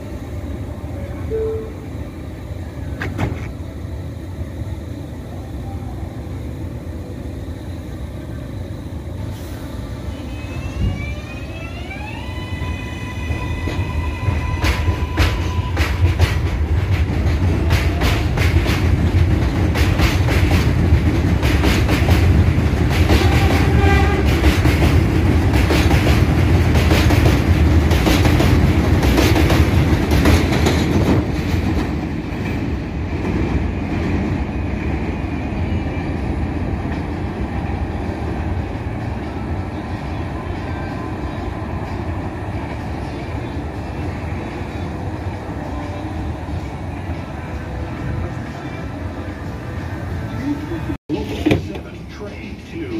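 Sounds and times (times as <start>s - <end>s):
train low rumble: 0.0s - 52.9s
train wheels clacking on rails: 13.6s - 34.3s.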